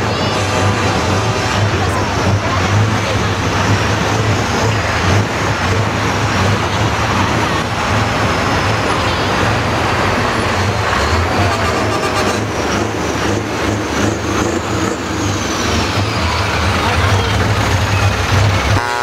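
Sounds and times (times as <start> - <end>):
road noise: 0.0 - 19.0
truck diesel engines running: 0.0 - 19.0.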